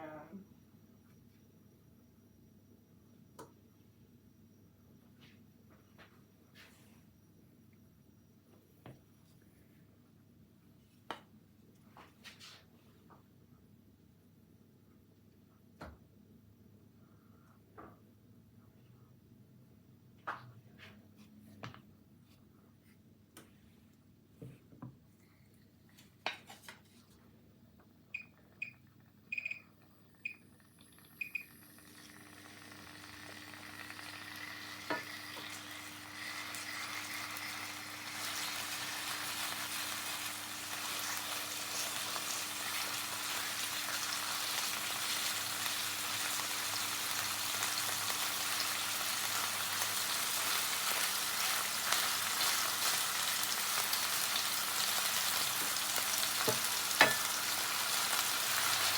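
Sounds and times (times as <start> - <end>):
high beeps: 28.2 - 30.4
fish sizzling in a pan: 32.0 - 58.9.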